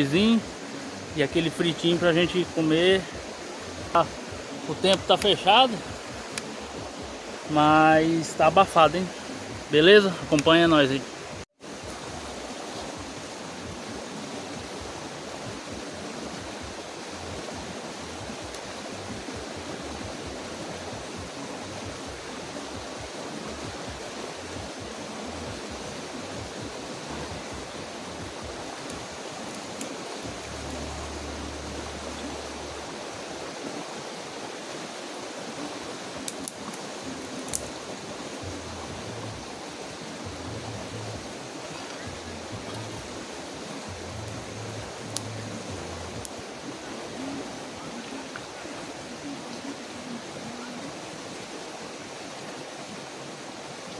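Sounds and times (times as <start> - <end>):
creek water running: 0.0 - 53.9
faint clicks: 28.8 - 30.8, 36.2 - 37.9, 45.1 - 45.5.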